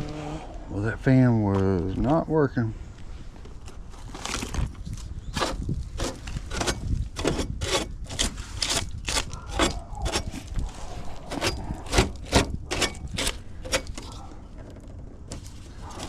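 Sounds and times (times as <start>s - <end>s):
rubbing and scraping strokes: 5.3s - 14.7s.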